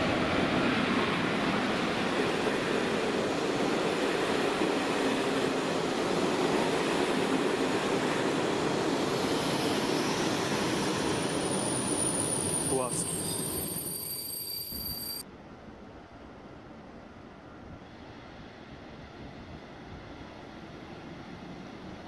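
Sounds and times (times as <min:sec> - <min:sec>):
high hiss: 0:08.9 - 0:15.2.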